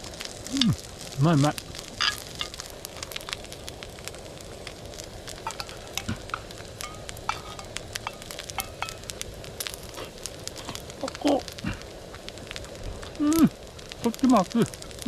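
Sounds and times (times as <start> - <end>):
food sizzling and popping: 0.0 - 15.0.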